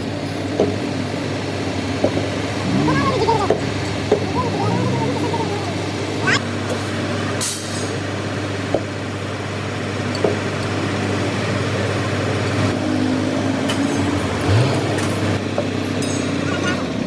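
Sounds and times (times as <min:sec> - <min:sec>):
vehicle engine humming: 0:00.0 - 0:10.1.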